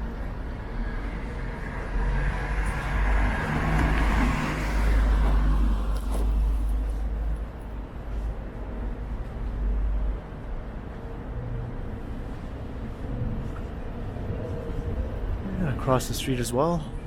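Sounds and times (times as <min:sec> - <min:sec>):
car passing: 0:00.0 - 0:06.7.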